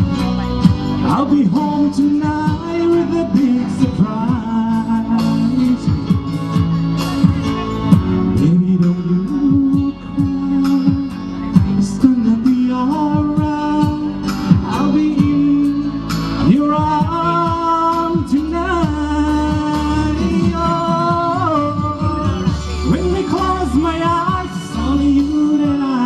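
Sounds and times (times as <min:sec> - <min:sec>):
band music with drums and bass: 0:00.0 - 0:26.0.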